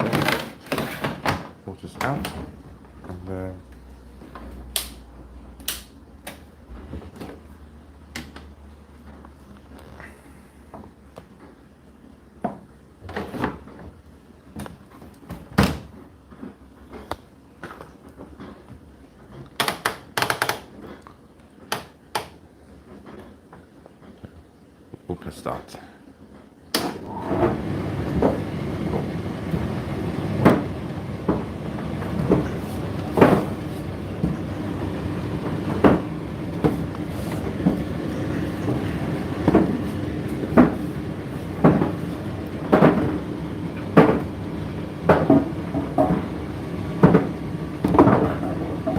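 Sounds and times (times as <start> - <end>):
tumble dryer clicks and clunks: 0.0 - 2.5
tumble dryer thump: 26.8 - 41.0, 41.6 - 44.4.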